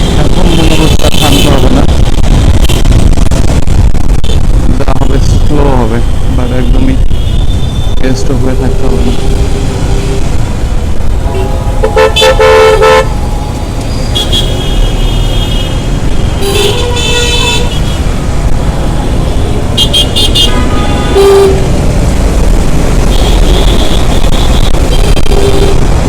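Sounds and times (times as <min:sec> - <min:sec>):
low rumble of traffic: 0:00.0 - 0:26.0
vehicle horns honking: 0:11.3 - 0:13.2, 0:14.0 - 0:18.1, 0:19.2 - 0:21.8, 0:23.1 - 0:26.0.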